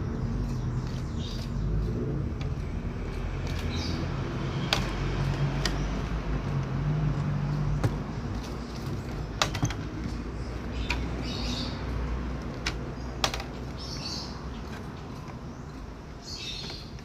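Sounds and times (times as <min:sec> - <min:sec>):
bird calls: 0:00.0 - 0:02.0, 0:07.7 - 0:17.0.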